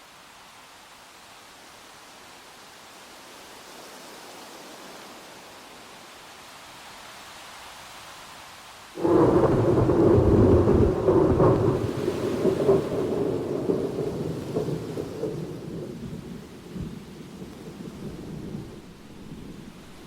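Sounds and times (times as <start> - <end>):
rain: 0.0 - 20.0
thunderclap rolling rumble: 9.0 - 20.0.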